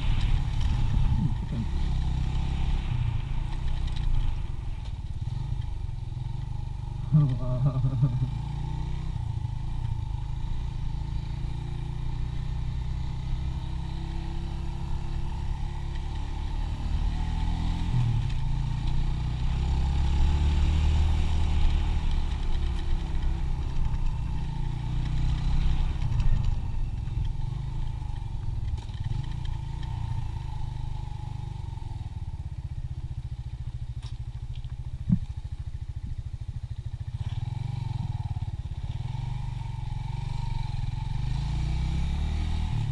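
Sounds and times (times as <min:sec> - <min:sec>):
wind rumble on microphone: 0:00.0 - 0:01.9
motorcycle engine running: 0:00.0 - 0:42.9.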